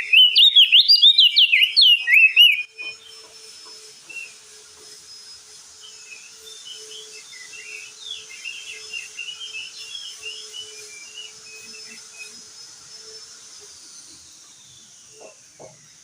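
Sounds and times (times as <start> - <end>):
bird twittering chatter: 0.0 - 3.2.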